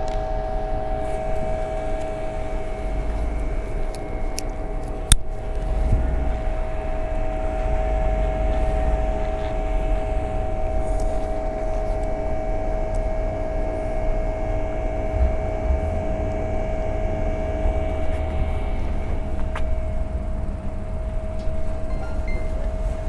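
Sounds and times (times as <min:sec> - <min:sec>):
electric motor whine: 0:00.0 - 0:23.0
wind rumble on microphone: 0:00.0 - 0:23.0.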